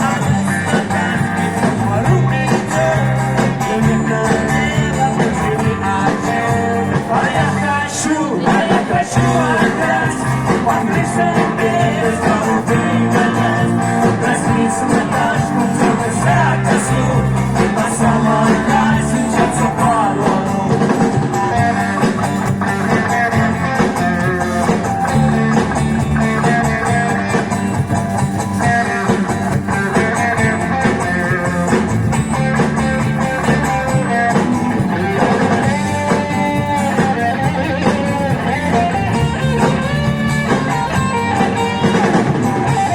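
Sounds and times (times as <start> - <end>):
person singing: 0.0 - 21.9
bass line: 0.0 - 42.9
guitar: 0.0 - 42.9
live band playing pop song: 0.0 - 42.9.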